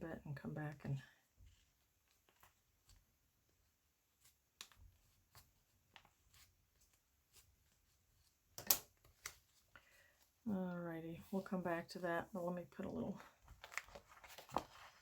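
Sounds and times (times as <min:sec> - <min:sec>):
faint clicks and taps of handling: 0:04.2 - 0:07.8.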